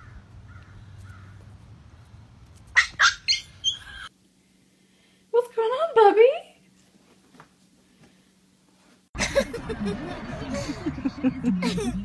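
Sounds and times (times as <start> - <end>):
bird squawking: 2.8 - 4.1.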